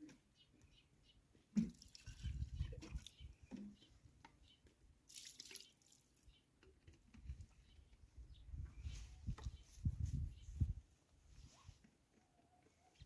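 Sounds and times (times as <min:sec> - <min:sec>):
water dripping and splashing: 0:01.6 - 0:03.2, 0:05.1 - 0:06.2.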